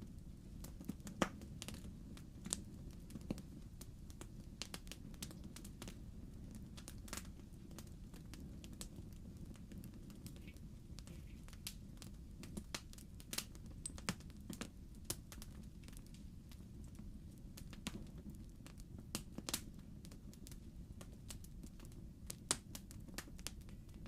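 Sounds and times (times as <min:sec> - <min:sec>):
logs crackling in fireplace: 0:00.0 - 0:24.0.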